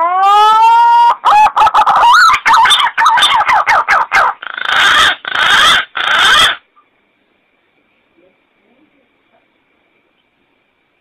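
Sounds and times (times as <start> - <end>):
harsh rasping bird calls: 1.1 - 6.8.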